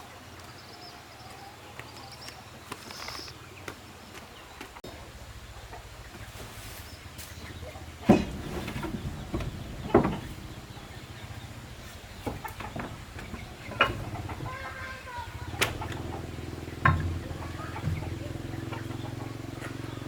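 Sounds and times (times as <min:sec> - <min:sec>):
steady low hum: 0:03.5 - 0:20.0
sharp knocks: 0:07.3 - 0:20.0.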